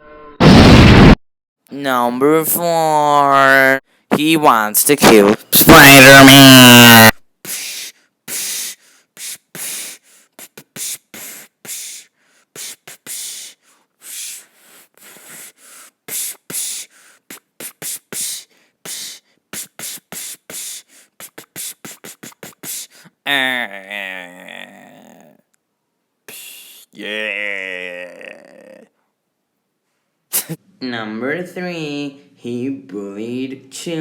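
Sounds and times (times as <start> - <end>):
beatboxing mouth sounds: 5.0 - 25.3, 26.3 - 27.1, 30.3 - 30.6.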